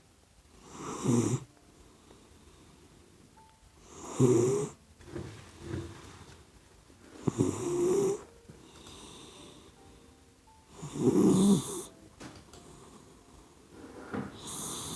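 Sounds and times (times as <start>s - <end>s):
puppy snoring: 0.6s - 1.5s, 3.8s - 4.8s, 7.2s - 9.8s, 10.7s - 12.0s, 12.6s - 14.9s
puppy breathing: 12.6s - 14.9s.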